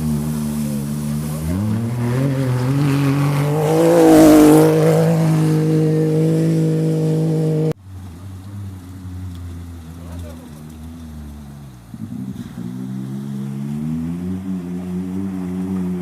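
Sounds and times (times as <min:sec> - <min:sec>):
racing vehicle engine passing: 0:00.0 - 0:16.0.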